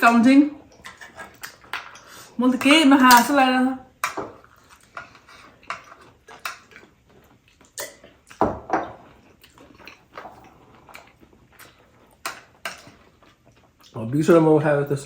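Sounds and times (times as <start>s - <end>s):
chewing: 0.6s - 2.3s, 4.0s - 14.0s.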